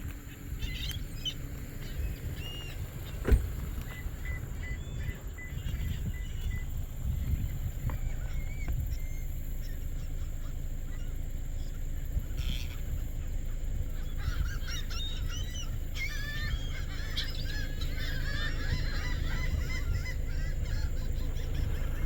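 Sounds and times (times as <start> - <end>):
low rumble: 0.0 - 22.0
geese honking: 8.1 - 22.0.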